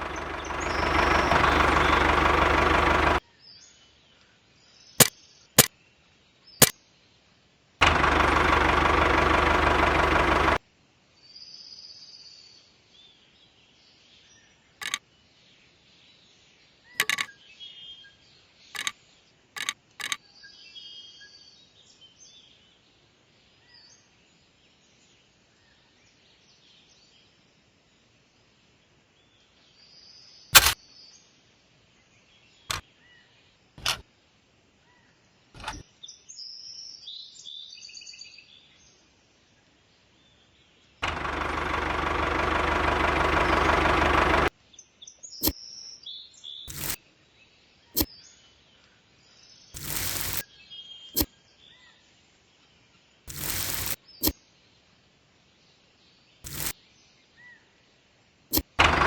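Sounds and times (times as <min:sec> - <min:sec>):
loud steady machine hum: 0:00.0 - 0:03.2, 0:07.8 - 0:10.6, 0:41.0 - 0:44.5, 0:58.8 - 0:59.0
sharp clicks: 0:00.0 - 0:03.2, 0:07.8 - 0:10.6, 0:18.8 - 0:19.0, 0:30.6 - 0:30.8, 0:41.0 - 0:44.5, 0:46.7 - 0:47.0, 0:49.8 - 0:50.4, 0:53.3 - 0:54.4, 0:56.5 - 0:56.7, 0:58.5 - 0:59.0
birds chirping: 0:00.0 - 0:04.0, 0:07.8 - 0:10.6, 0:40.2 - 0:54.8.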